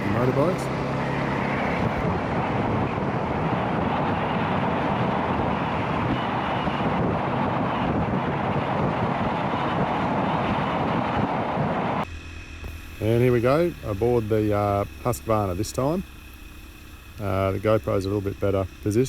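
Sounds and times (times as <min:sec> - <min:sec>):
dirt bike engine running: 0:00.0 - 0:07.5, 0:12.0 - 0:19.0
wind buffeting microphone: 0:00.0 - 0:12.0.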